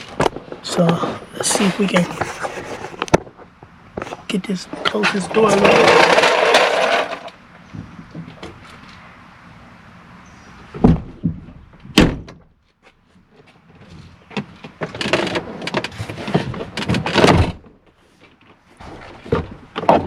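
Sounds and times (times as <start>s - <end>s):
car door clunks: 10.7s - 12.5s.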